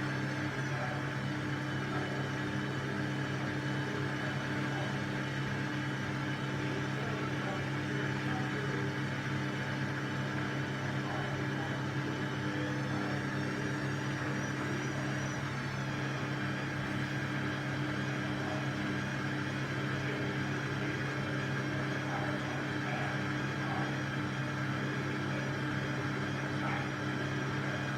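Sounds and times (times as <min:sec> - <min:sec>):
washing machine humming: 0:00.0 - 0:27.9.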